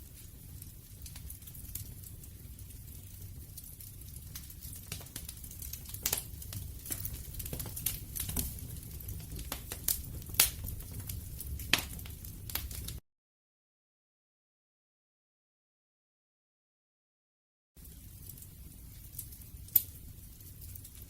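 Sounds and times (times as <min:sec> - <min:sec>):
sharp snaps of fire: 0:00.0 - 0:13.0, 0:17.8 - 0:21.0
wood fire crackling: 0:00.0 - 0:13.0, 0:17.8 - 0:21.0.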